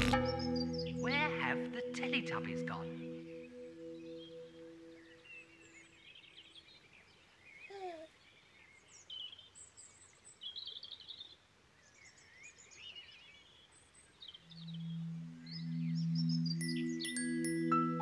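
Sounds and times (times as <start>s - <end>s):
small birds chirping and warbling: 0.0s - 18.0s.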